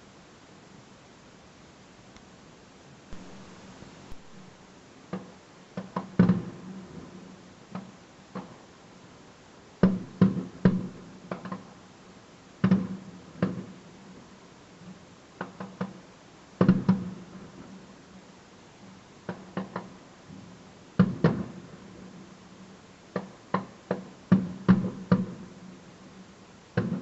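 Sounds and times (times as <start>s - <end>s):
firework bangs: 3.1s - 4.6s.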